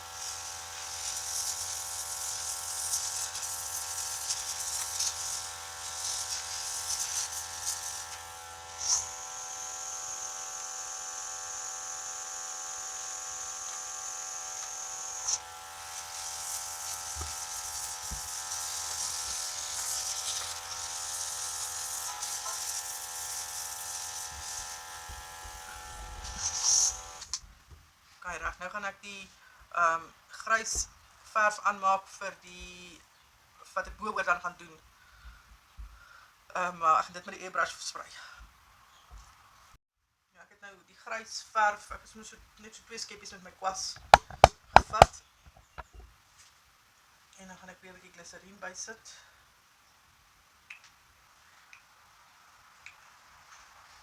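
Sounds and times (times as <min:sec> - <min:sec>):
airbrush hissing: 0:00.0 - 0:09.1, 0:15.2 - 0:27.3, 0:44.0 - 0:45.9
air compressor humming: 0:15.3 - 0:27.3, 0:44.0 - 0:45.9.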